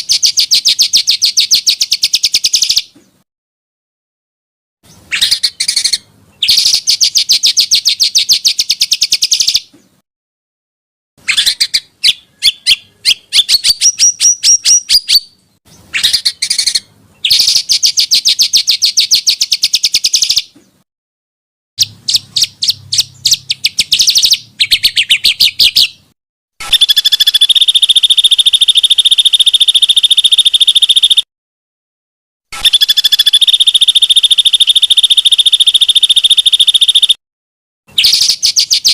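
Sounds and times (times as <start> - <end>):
long shrill bird trill: 0.0 - 2.9, 5.0 - 9.7, 11.2 - 20.5, 21.8 - 26.0, 26.6 - 31.3, 32.6 - 37.2, 37.9 - 38.9
songbirds trilling and chattering: 4.9 - 10.0, 11.2 - 20.8, 21.8 - 26.1.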